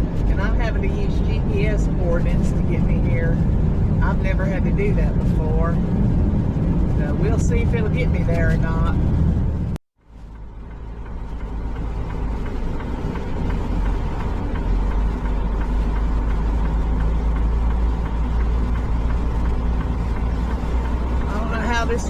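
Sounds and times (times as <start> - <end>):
road noise: 0.0 - 22.0
truck engine drone: 0.0 - 22.0.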